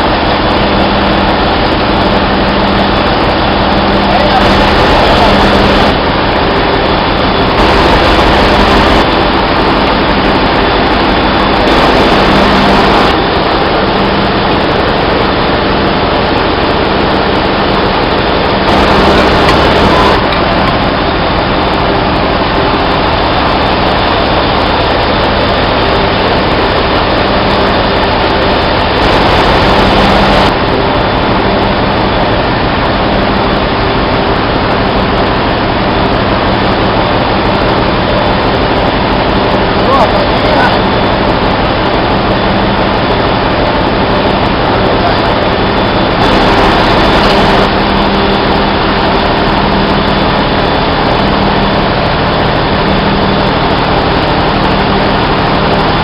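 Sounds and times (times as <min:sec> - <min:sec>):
engine-room machinery roar: 0:00.0 - 0:56.0.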